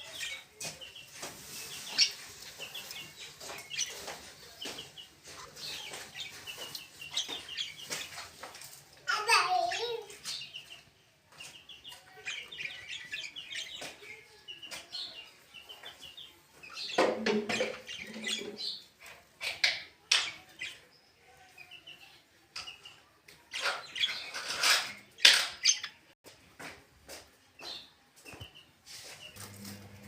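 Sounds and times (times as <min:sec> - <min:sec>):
small birds chirping: 0:00.0 - 0:26.2, 0:27.4 - 0:30.0
wing flapping and scuffling: 0:00.2 - 0:09.0.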